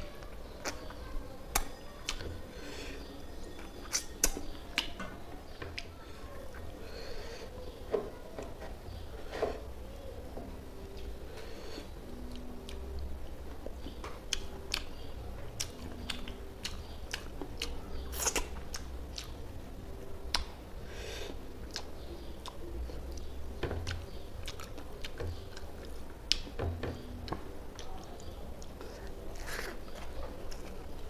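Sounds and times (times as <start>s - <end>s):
close chewing: 0.2s - 2.4s, 12.2s - 19.6s, 21.6s - 26.5s, 27.2s - 31.0s.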